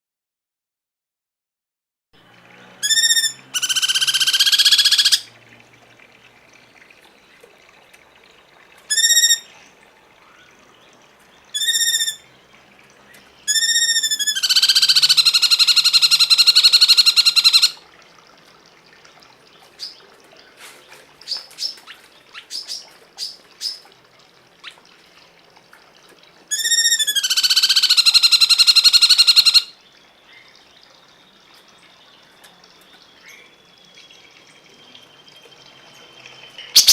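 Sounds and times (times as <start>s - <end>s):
bird notes rising and falling: 2.8s - 5.3s
long harsh bird calls: 2.8s - 5.3s, 8.9s - 9.6s, 11.5s - 12.3s, 13.4s - 17.8s, 26.5s - 29.8s, 36.7s - 36.9s.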